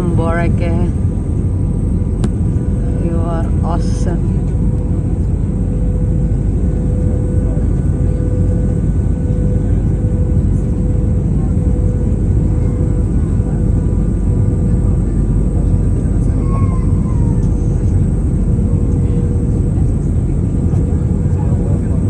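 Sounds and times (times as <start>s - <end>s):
steady hum: 0.0s - 16.4s
airplane cabin rumble: 0.0s - 22.0s.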